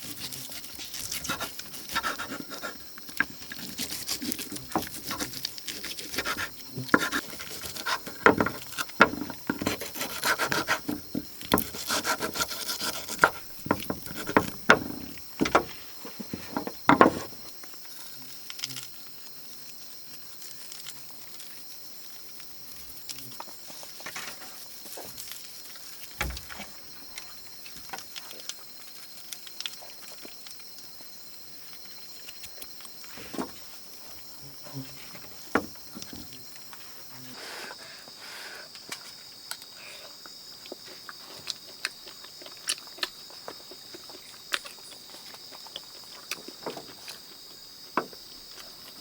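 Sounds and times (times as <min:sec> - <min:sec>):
wood knocking and scraping: 0:01.0 - 0:17.6, 0:26.2 - 0:26.7, 0:35.1 - 0:36.3.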